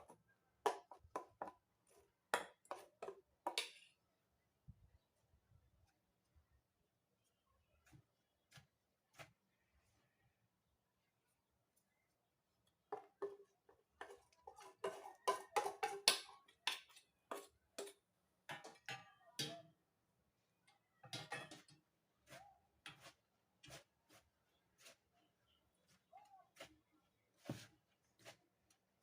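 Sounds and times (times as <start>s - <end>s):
utensil clinking against a bowl: 14.0s - 19.6s.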